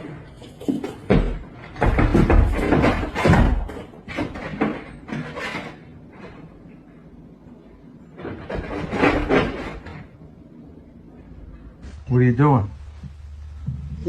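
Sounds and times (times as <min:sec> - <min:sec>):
heavy thumps and knocks: 0:00.6 - 0:06.4.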